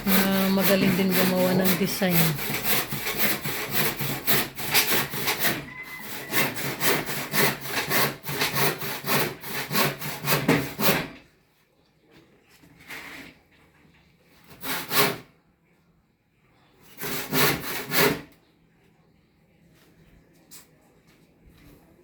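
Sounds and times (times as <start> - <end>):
hand saw cutting wood: 0.0 - 11.3, 14.4 - 15.3, 16.9 - 18.4.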